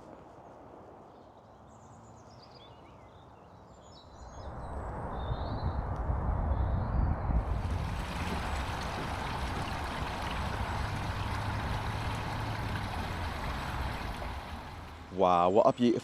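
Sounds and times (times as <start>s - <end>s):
low rushing noise: 4.4s - 15.6s
birds chirping: 7.5s - 16.0s.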